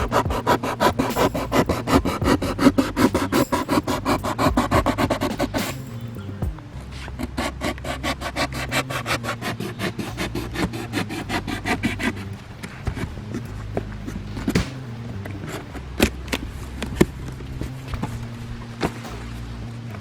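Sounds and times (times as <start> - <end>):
rapid rasping strokes: 0.0 - 20.0.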